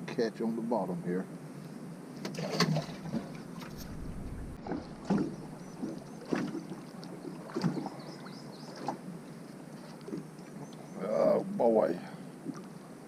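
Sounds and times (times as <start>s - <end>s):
low background hiss: 0.0s - 13.0s.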